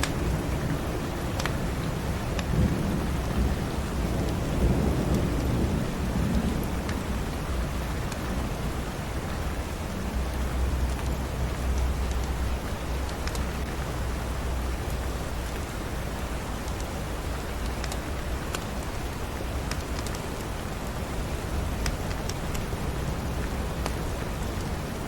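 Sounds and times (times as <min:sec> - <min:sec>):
steady rain: 0:00.0 - 0:25.0
rolling thunder: 0:01.7 - 0:09.2.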